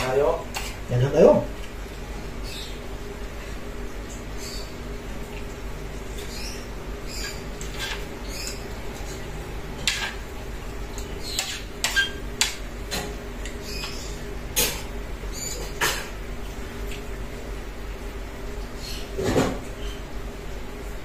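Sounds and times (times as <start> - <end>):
steady low hum: 0.0 - 21.0
faint bird chirps: 2.4 - 2.8, 4.3 - 4.8.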